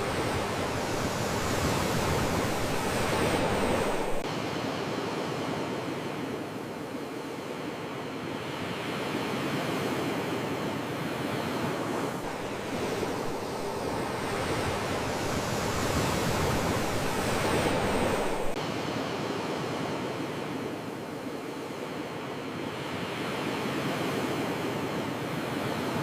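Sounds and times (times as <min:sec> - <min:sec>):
sea waves washing onto shore: 0:00.0 - 0:07.3, 0:09.9 - 0:22.2.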